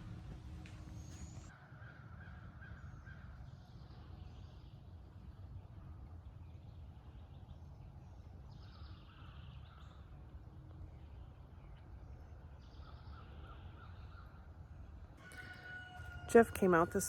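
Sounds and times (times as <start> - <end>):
low steady rumble: 0.0 - 1.5
birds calling faintly: 0.0 - 17.0.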